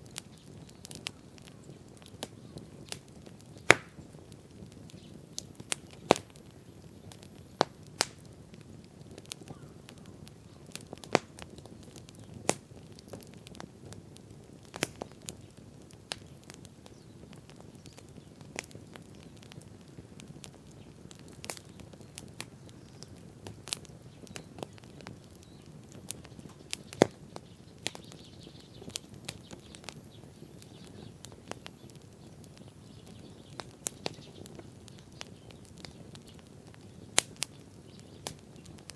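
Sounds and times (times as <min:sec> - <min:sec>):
campfire popping: 0:00.0 - 0:38.9
low rush of burning fire: 0:00.0 - 0:38.9.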